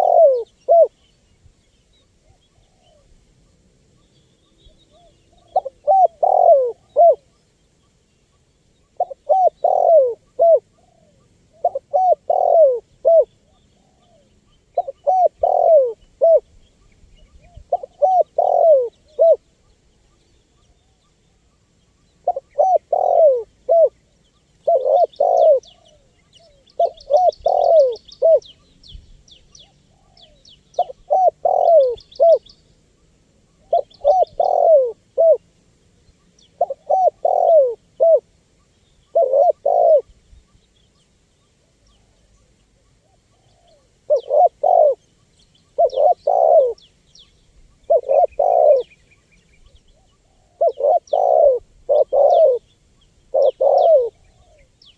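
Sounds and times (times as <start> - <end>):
dove cooing: 0.0 - 1.1, 4.6 - 7.4, 8.8 - 16.5, 17.2 - 19.5, 22.0 - 24.0, 24.6 - 28.6, 29.5 - 32.5, 33.5 - 35.4, 36.4 - 38.3, 39.0 - 40.2, 41.9 - 45.1, 45.7 - 46.9, 47.7 - 49.0, 49.8 - 54.8
small birds chirping: 0.0 - 54.9.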